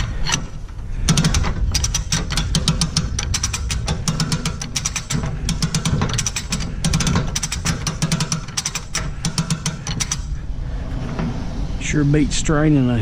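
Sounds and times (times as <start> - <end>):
hoist ratchet clicking: 0.0 - 10.4
low running hum: 0.0 - 13.0.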